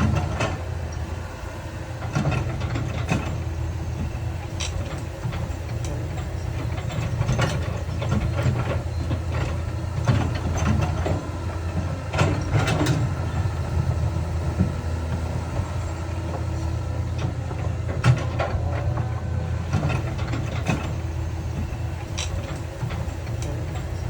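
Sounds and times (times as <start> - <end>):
diesel machine droning: 0.0 - 24.0.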